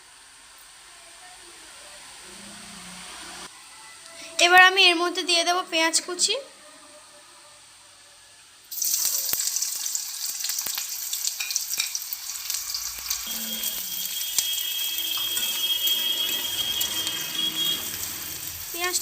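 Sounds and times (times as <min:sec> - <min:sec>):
onion sizzling in hot oil: 0:08.7 - 0:19.0.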